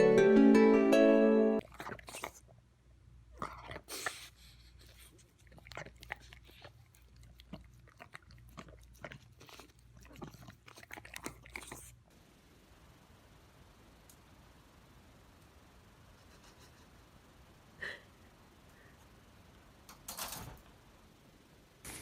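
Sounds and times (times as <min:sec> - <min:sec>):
dog chewing and crunching food: 0:01.6 - 0:02.6, 0:03.4 - 0:12.1.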